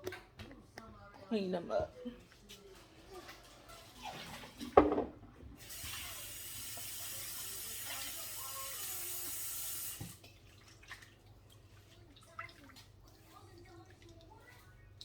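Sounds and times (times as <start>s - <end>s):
tap water running into sink: 4.0s - 14.4s.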